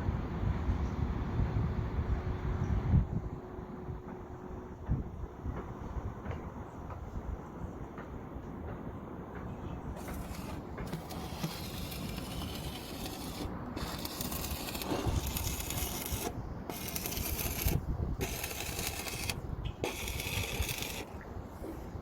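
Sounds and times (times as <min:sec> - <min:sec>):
welding arc crackling: 0:10.0 - 0:21.2.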